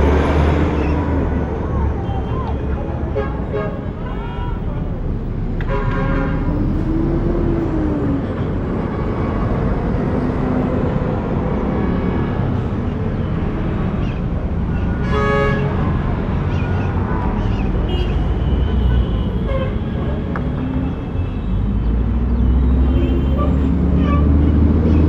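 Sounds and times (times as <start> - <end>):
passing cars rumbling: 0.0 - 25.0
car horn toot: 5.6 - 6.5.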